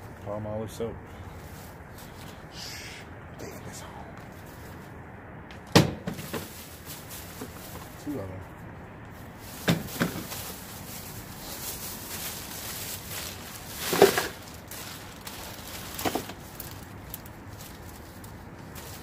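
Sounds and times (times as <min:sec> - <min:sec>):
bag rustling: 0:09.3 - 0:19.0
items knocking: 0:09.6 - 0:10.4, 0:13.8 - 0:14.5.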